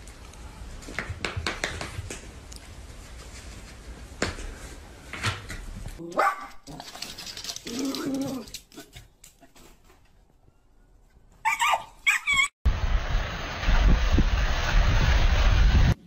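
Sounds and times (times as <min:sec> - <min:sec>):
dog barking: 0:06.1 - 0:06.6, 0:11.4 - 0:12.4.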